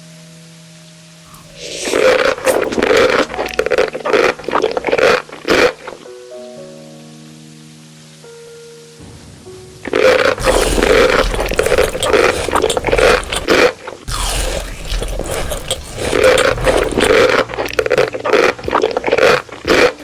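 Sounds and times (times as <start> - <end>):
loud scraping: 1.3 - 3.5, 10.4 - 17.7.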